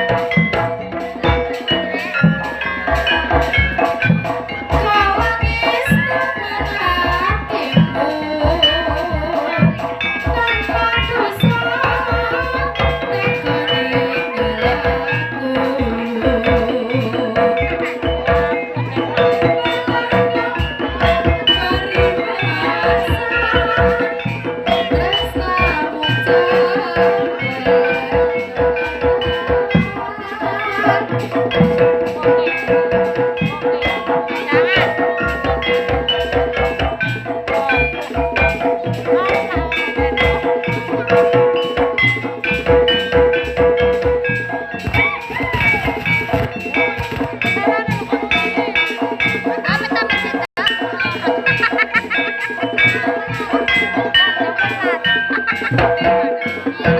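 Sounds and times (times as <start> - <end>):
gamelan melody: 0.0 - 56.9
hand drums beating: 0.0 - 56.9
person singing: 4.7 - 36.1, 44.7 - 56.9.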